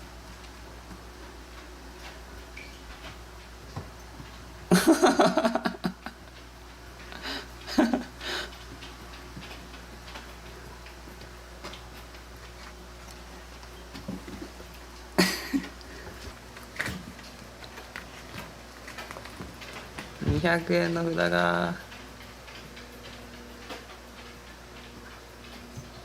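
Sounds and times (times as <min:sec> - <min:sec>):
low room hum: 0:00.0 - 0:26.0
cats scrabbling and clattering: 0:00.3 - 0:26.0
knocks and rustles: 0:08.7 - 0:15.0, 0:15.6 - 0:20.8.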